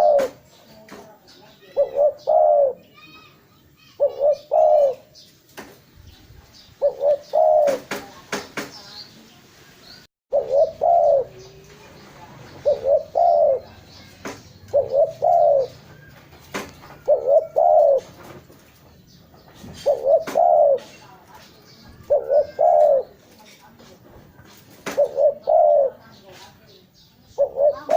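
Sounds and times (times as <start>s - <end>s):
dove cooing: 0.0s - 0.4s, 1.5s - 3.0s, 4.0s - 5.2s, 6.8s - 8.2s, 10.3s - 11.7s, 12.4s - 16.2s, 16.8s - 18.4s, 19.7s - 21.0s, 21.9s - 23.4s, 24.9s - 26.3s, 27.3s - 27.9s.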